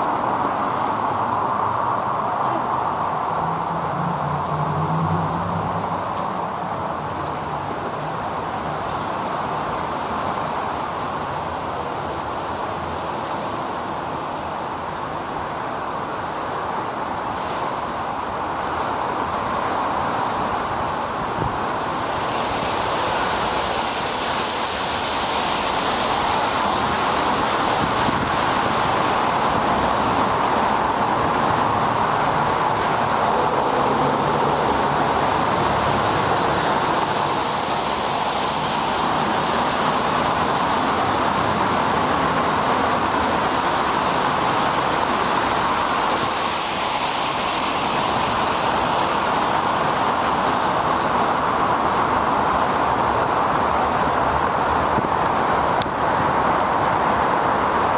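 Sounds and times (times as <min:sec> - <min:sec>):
tyres hissing on wet pavement: 0:00.0 - 0:57.9
wind over microphone: 0:25.2 - 0:37.9.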